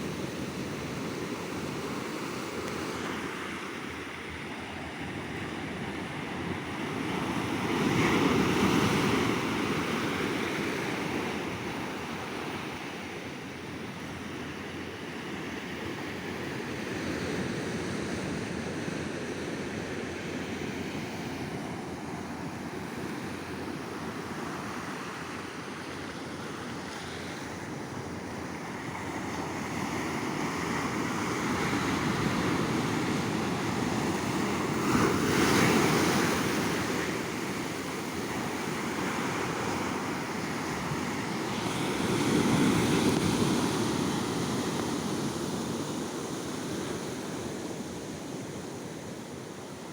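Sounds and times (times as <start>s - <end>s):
sea waves breaking on beach: 28.5s - 47.6s.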